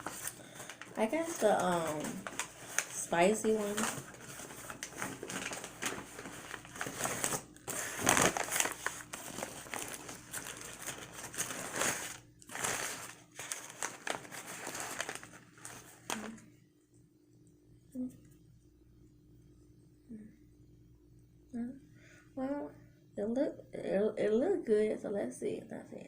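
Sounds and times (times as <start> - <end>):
food wrapper crinkling: 0.0 - 16.4.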